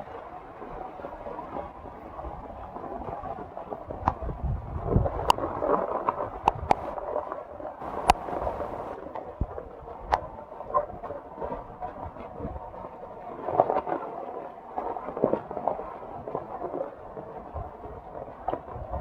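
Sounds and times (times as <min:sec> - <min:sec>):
heavy rain falling: 0:07.8 - 0:09.0.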